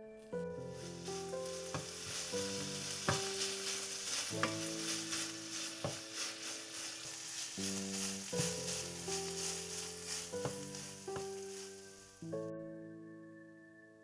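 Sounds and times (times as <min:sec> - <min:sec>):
gentle background music: 0:00.0 - 0:14.0
food sizzling in a frying pan: 0:00.8 - 0:12.2.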